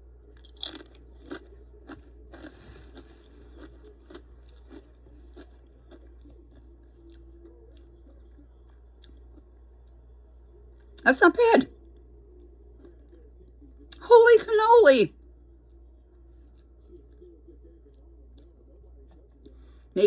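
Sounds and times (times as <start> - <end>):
chip crunching while chewed: 0.2 - 10.0.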